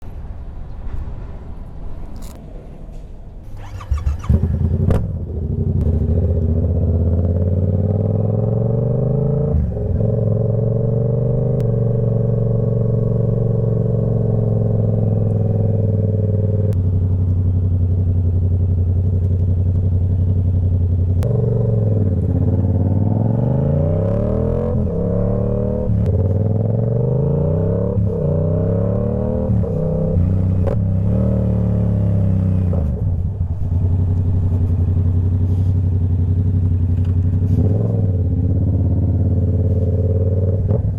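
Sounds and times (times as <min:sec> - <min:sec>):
motorcycle engine running: 0:03.6 - 0:08.7, 0:13.3 - 0:24.2, 0:30.1 - 0:40.9.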